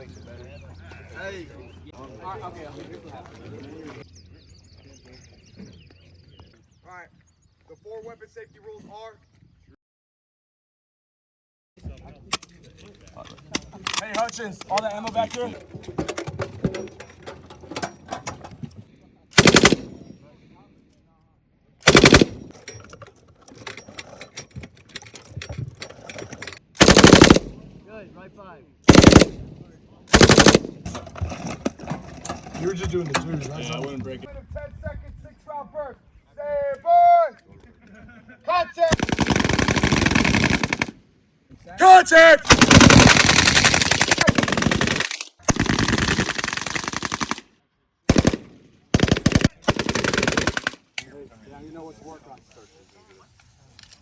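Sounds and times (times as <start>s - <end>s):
machine gun burst: 19.4s - 20.0s, 21.8s - 22.5s, 26.8s - 27.6s, 28.9s - 29.4s, 30.1s - 30.8s, 38.9s - 40.9s, 42.5s - 47.4s, 48.1s - 50.8s.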